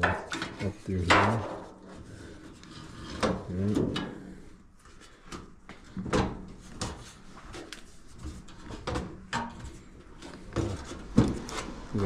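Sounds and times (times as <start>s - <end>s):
knocks and clicks of parts handled: 5.3s - 11.5s.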